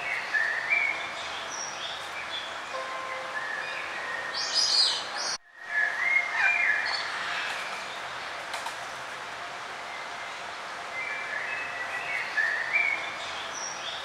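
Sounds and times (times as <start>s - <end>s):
background hiss: 0.0s - 6.1s
songbirds singing and calling: 0.0s - 8.1s, 10.0s - 14.0s
loud high bird chirping: 2.8s - 5.4s.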